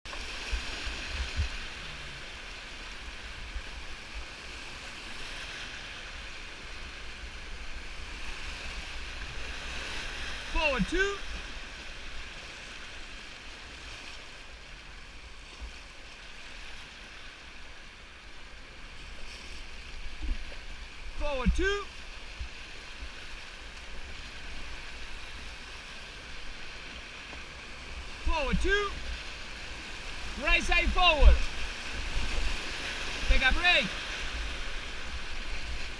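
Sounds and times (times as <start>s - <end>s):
river water rushing: 0.1s - 35.9s.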